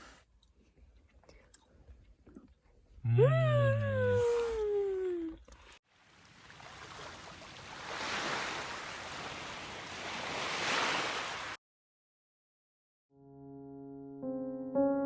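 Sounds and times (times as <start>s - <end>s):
sea waves washing onto beach: 5.9s - 11.6s.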